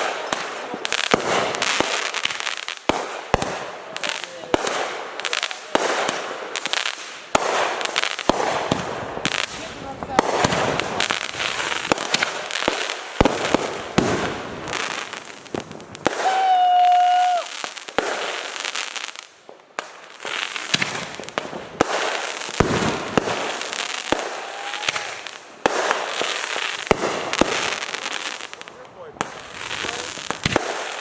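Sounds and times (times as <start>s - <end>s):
fireworks bangs and crackling: 0.0s - 31.0s
firework whistling tone: 14.6s - 17.8s, 22.8s - 28.5s.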